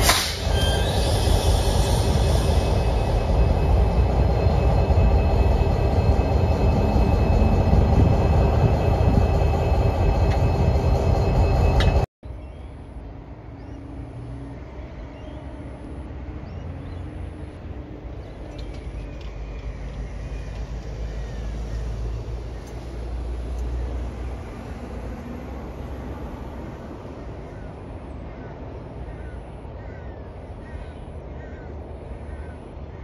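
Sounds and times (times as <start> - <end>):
train wheels rumbling on rail: 0.0 - 12.1, 17.4 - 30.9
distant engine hum: 1.4 - 33.0.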